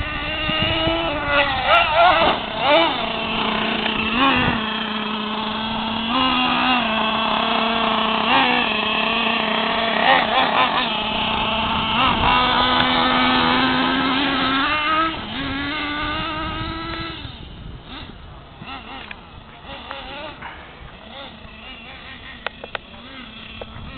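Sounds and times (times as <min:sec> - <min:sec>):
engine rev blips: 0:00.0 - 0:23.9
small engine buzzing: 0:00.0 - 0:23.9.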